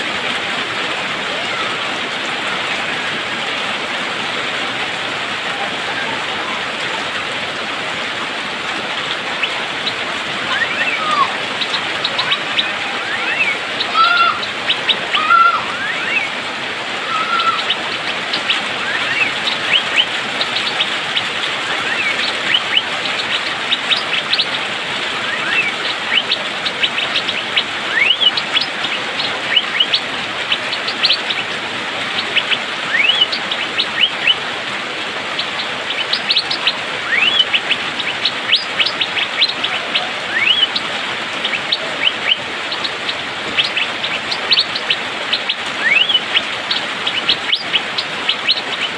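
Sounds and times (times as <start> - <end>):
rain hiss: 0.0 - 48.9
bird calling in sharp upsweeping notes: 9.2 - 31.5, 32.1 - 34.5, 35.4 - 48.9.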